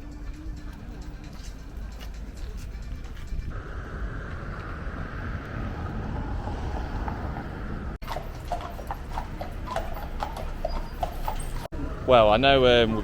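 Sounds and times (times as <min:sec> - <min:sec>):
street ambience: 0:00.0 - 0:13.0
wind rumble on microphone: 0:00.4 - 0:08.0
horse hooves on paving: 0:08.0 - 0:11.7.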